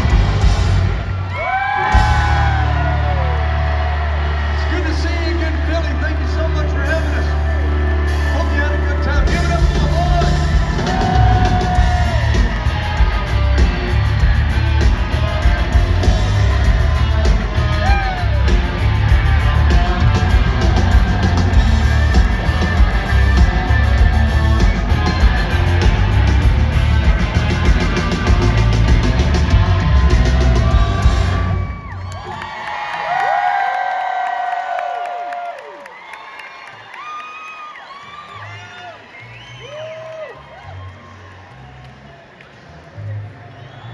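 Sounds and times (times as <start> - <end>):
country-rock band playing: 0.0 - 31.8
drums: 0.0 - 35.5
crowd cheering: 0.0 - 43.9.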